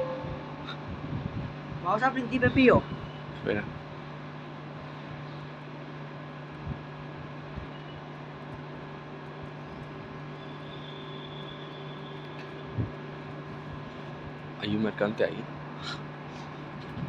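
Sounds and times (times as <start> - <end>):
faint high whine: 0.0 - 0.9, 9.7 - 13.0
train running rumble: 0.0 - 4.8.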